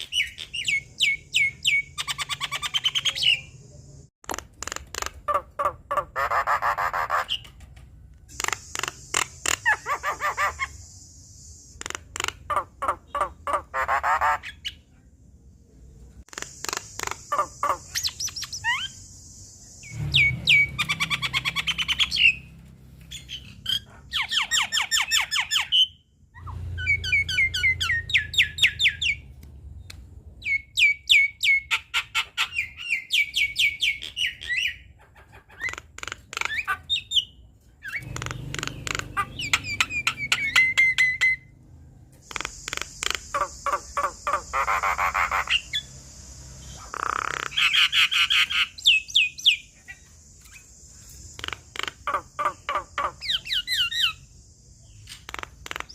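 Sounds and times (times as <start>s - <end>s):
bird singing and trilling: 0.0s - 7.6s, 8.3s - 14.9s, 16.3s - 29.3s, 30.4s - 41.6s, 42.2s - 55.9s
bird squawking: 4.3s - 7.5s, 8.3s - 10.8s, 11.8s - 14.8s, 16.3s - 19.0s, 31.4s - 41.5s, 42.2s - 45.9s, 46.7s - 50.1s, 51.4s - 54.2s.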